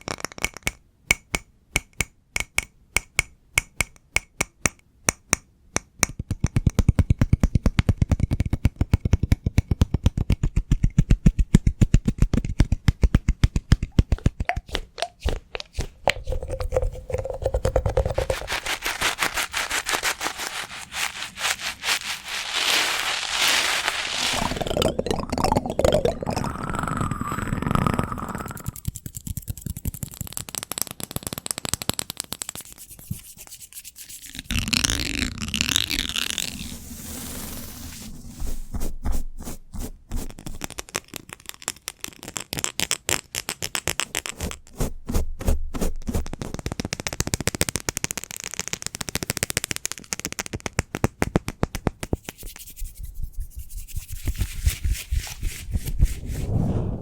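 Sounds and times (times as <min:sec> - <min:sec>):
rapid tapping on objects: 0:00.0 - 0:24.5
scratching and rubbing on objects: 0:13.8 - 0:25.2, 0:28.6 - 0:57.0.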